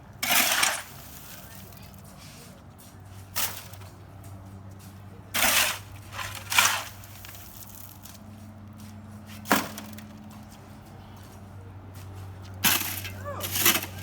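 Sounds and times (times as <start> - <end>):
scraping crunching work noises: 0.0 - 14.0.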